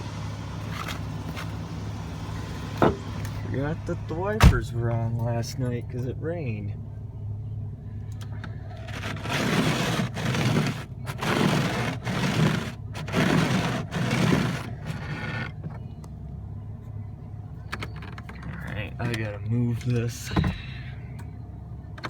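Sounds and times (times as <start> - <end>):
car engine idling: 0.0 - 22.0
scraping ice off car glass: 8.7 - 15.6.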